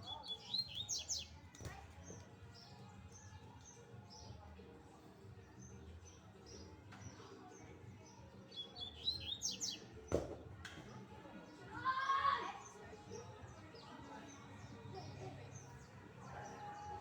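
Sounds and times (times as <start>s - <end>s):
bird chirping and singing: 0.0s - 1.3s, 8.5s - 9.8s.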